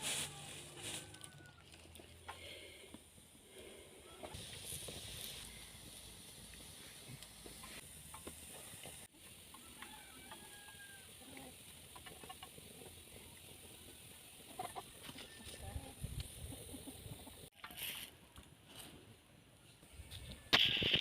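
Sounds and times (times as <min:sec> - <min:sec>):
steady hiss: 0:02.6 - 0:10.2.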